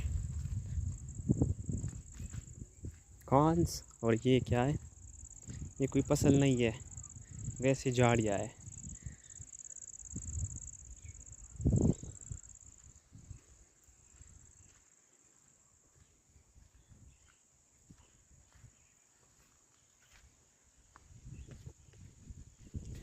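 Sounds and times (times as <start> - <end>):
insects chorus: 0.0 - 23.0.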